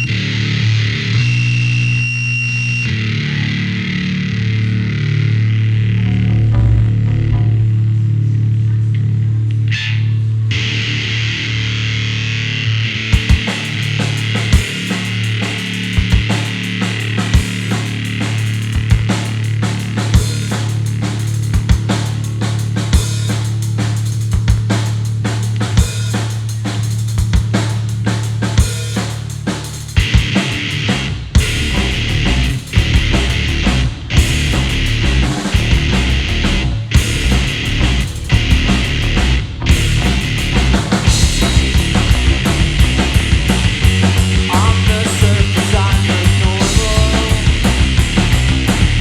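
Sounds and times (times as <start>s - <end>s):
electric guitar lead bending notes: 0.0s - 8.5s, 30.0s - 49.0s
steady low drone: 2.9s - 25.8s, 30.5s - 49.0s
rock drum kit beat: 13.1s - 49.0s.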